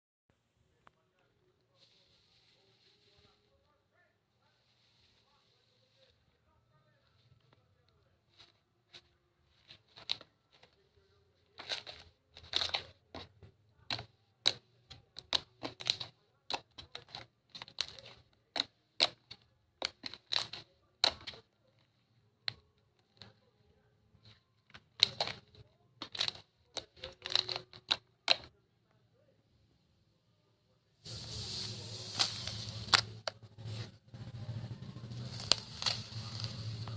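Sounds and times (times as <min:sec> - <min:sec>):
crunchy slime crackling: 0:34.7 - 0:36.9.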